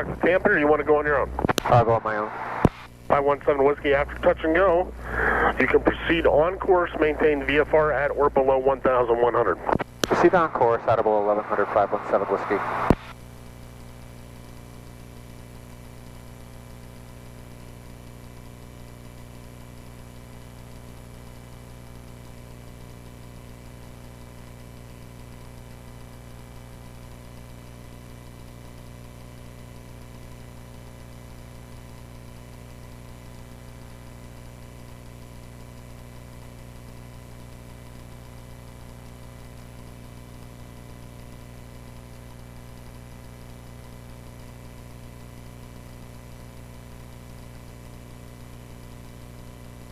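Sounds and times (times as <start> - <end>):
airplane propeller engine droning: 3.1 - 12.8.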